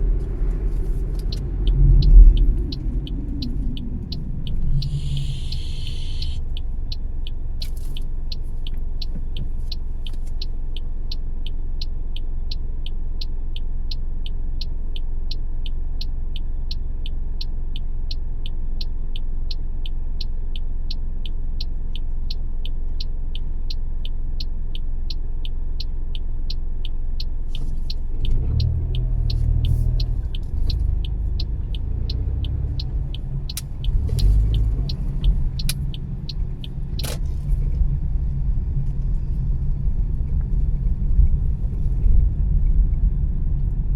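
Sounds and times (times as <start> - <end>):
fast even ticking: 0.0 - 9.1, 26.5 - 39.4
car engine and road rumble: 0.0 - 43.9.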